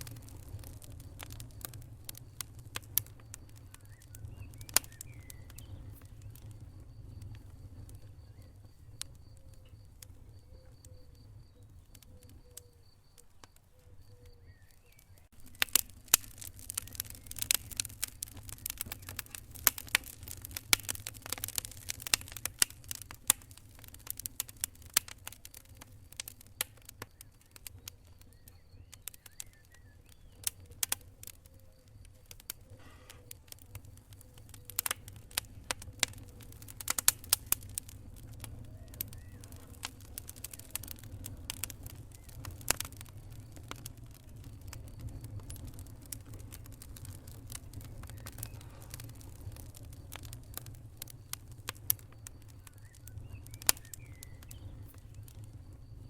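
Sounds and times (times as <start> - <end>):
low rumble of burning: 0.0 - 56.0
wood fire crackling and popping: 0.0 - 56.0.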